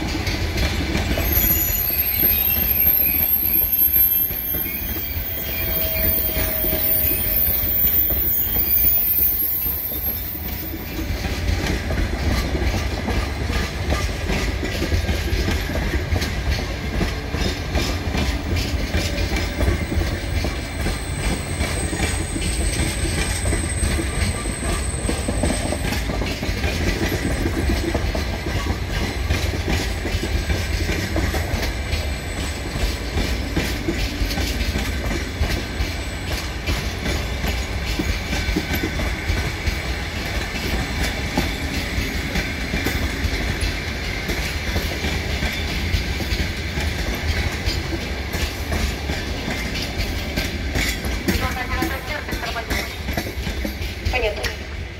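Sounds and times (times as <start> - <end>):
low train rumble: 0.0 - 54.9
train wheels clickety-clack: 0.0 - 54.9
thin high squeal: 1.3 - 10.5.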